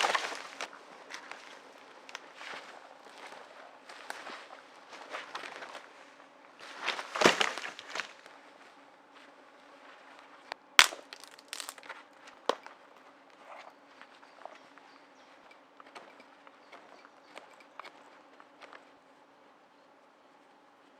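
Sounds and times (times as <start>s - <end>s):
dry sticks and litter crunching: 0.0s - 2.3s, 6.6s - 8.3s, 10.8s - 11.9s
stick snapping: 10.8s - 11.8s.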